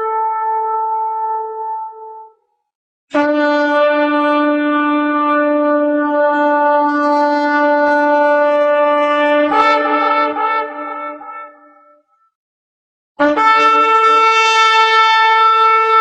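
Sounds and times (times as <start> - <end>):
ram's horn blast: 13.2 - 16.0.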